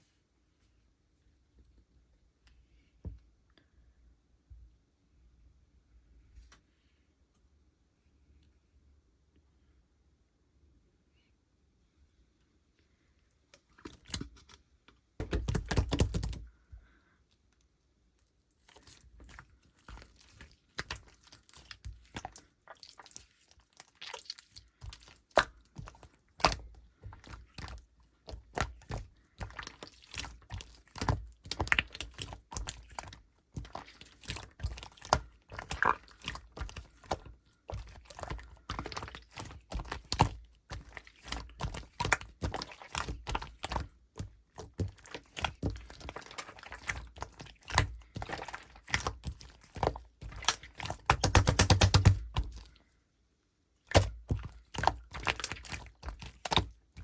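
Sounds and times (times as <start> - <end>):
slime kneaded by hand: 13.6 - 53.0, 53.8 - 57.0.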